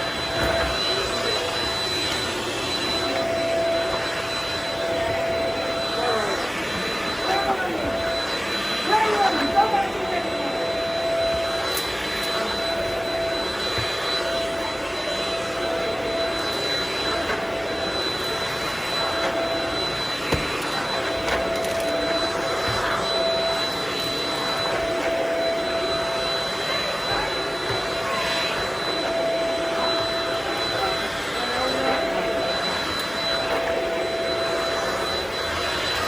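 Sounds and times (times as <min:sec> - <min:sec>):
vacuum cleaner whining: 0:00.0 - 0:36.0.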